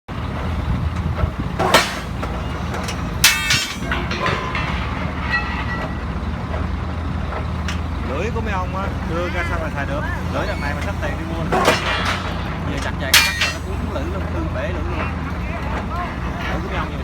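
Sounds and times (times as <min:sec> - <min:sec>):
rebar cutter humming: 0:01.3 - 0:17.0
metallic clack of blades: 0:01.6 - 0:06.0, 0:11.5 - 0:14.0.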